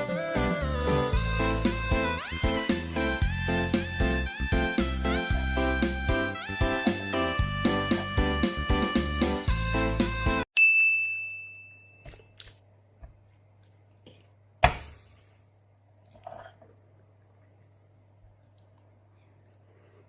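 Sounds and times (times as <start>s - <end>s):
music: 0.0s - 10.5s
bright ding: 10.6s - 12.3s.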